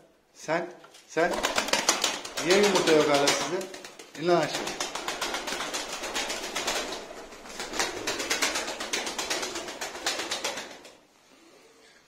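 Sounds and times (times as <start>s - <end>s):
pigeon wings flapping: 1.2s - 11.0s.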